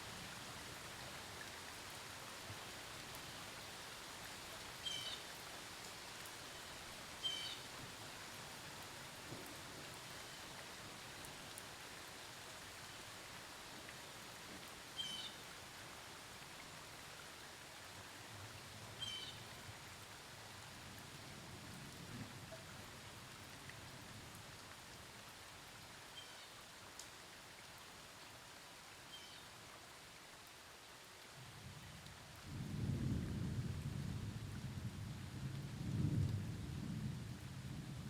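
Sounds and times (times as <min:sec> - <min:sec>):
light rain falling: 0:00.0 - 0:38.0
low thunder rumble: 0:32.5 - 0:38.0.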